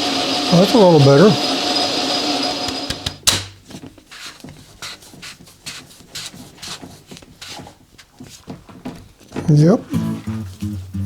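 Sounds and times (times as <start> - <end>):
vacuum cleaner motor switching off: 0.0 - 3.3.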